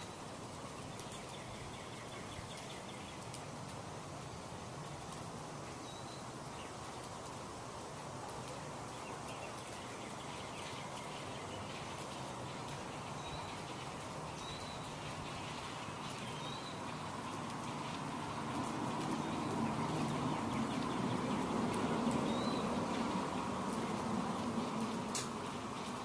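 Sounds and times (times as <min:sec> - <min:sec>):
steady background hiss: 0:00.0 - 0:26.0
faint high bird chirps: 0:05.8 - 0:06.3, 0:09.0 - 0:17.8
light clicks: 0:25.1 - 0:25.4.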